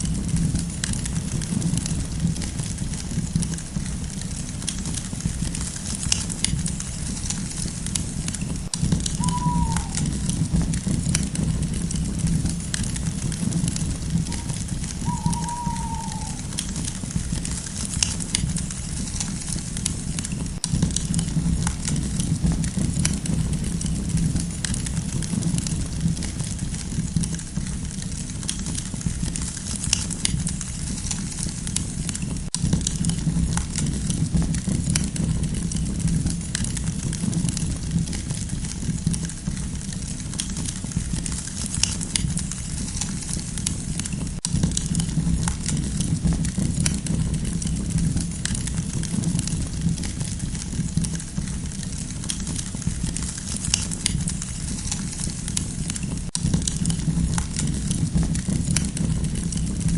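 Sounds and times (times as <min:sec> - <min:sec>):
campfire crackling: 0:00.0 - 0:59.9
low rumble of flames: 0:00.0 - 0:59.9.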